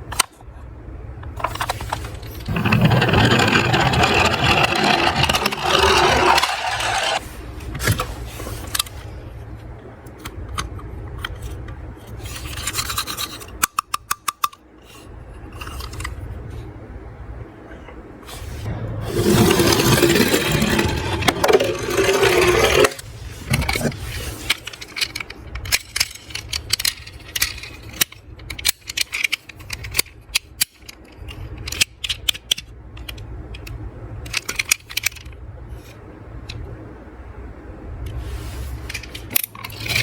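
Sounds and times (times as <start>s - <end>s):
steady low hum: 0.0s - 13.8s, 14.7s - 40.0s
toy cars rolling down slope: 1.4s - 7.2s, 19.0s - 23.0s.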